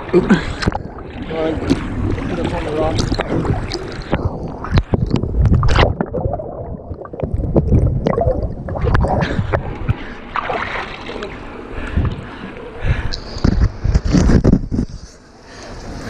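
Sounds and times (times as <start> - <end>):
wind buffeting microphone: 0.7 - 10.2, 11.8 - 15.1
river water rushing and splashing: 10.2 - 11.6.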